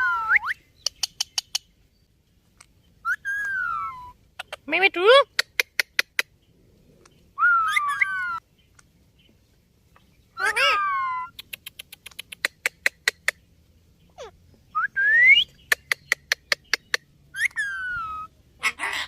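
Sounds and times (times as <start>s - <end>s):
parakeet whistling: 7.4s - 8.4s, 17.4s - 18.3s
quick sharp clicks: 11.4s - 13.3s.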